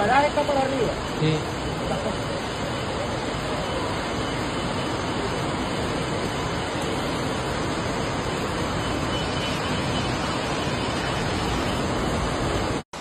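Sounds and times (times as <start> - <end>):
rushing floodwater: 0.0 - 13.0.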